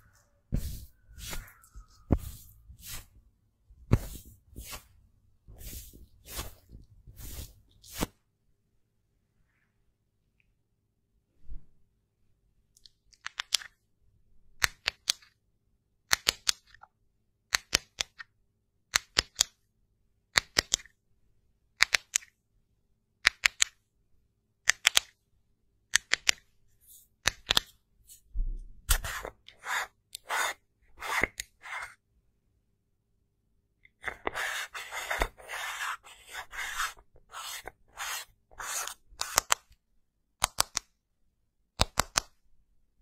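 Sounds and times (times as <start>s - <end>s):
scratchy strokes: 0.0s - 3.2s, 3.9s - 8.2s, 28.9s - 32.0s, 34.0s - 39.6s.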